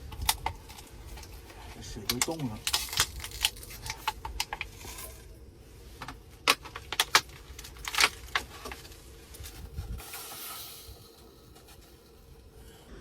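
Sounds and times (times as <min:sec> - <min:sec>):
brief hiss: 0:10.0 - 0:11.2.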